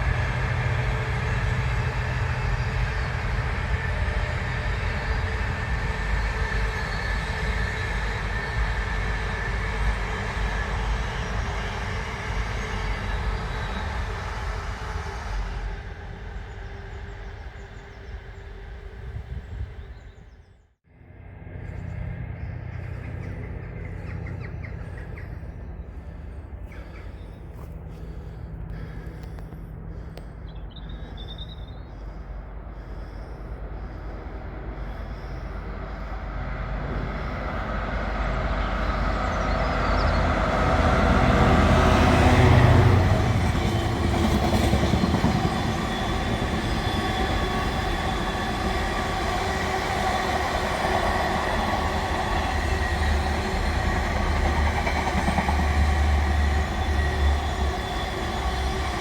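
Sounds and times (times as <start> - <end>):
diesel locomotive approaching: 0.0 - 59.0
bird chirping: 30.4 - 32.2.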